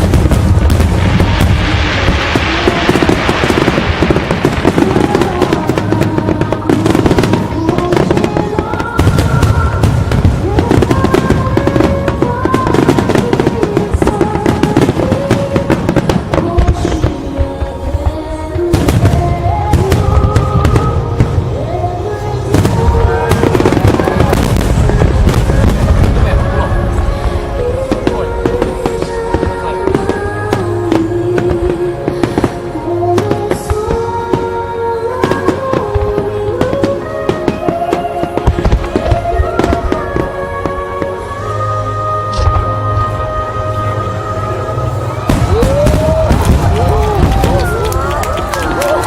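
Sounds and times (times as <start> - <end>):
deep rumble: 0.0 - 32.0
fireworks crackling bangs: 0.0 - 49.0
music playing: 0.0 - 49.0.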